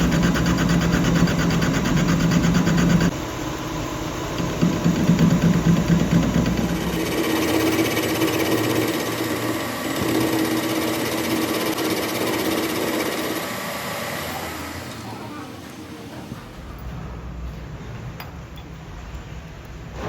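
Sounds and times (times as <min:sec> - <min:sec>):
machine rattling buzz: 0:00.0 - 0:15.3.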